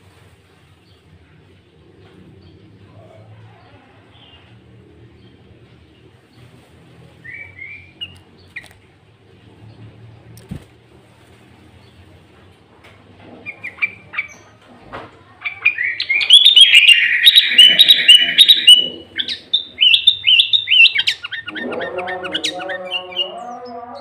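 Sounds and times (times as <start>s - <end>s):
bulbul chirping song: 15.5s - 24.0s.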